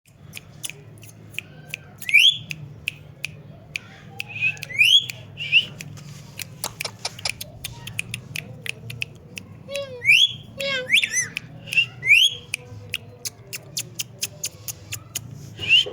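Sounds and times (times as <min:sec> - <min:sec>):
parrot chirps and clicks: 0:00.1 - 0:15.9
parrot whistling: 0:10.0 - 0:12.4.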